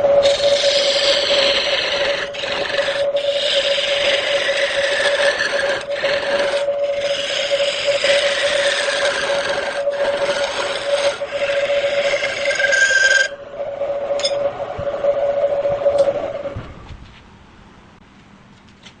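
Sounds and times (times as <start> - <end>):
wood lathe humming: 0.0 - 16.8
turning tool scraping wood: 0.2 - 13.4.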